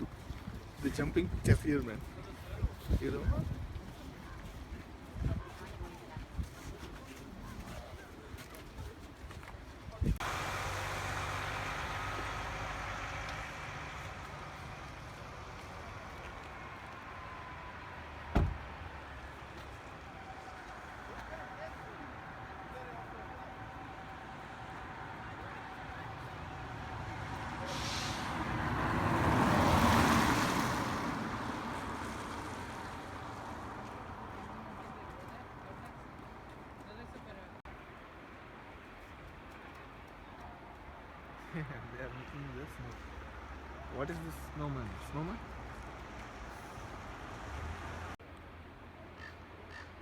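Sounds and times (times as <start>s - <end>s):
vehicle driving past: 10.2s - 18.8s, 23.7s - 34.4s.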